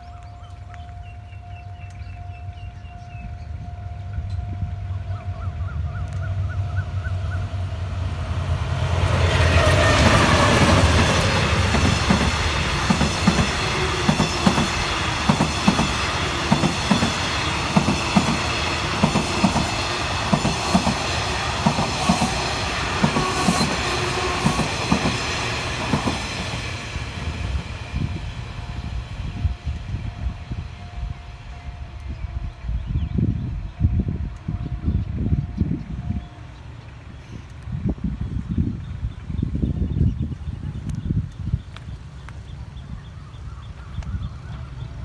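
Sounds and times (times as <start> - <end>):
diesel locomotive engine rumble: 0.0 - 45.0
train wheels clickety-clack: 8.9 - 28.4.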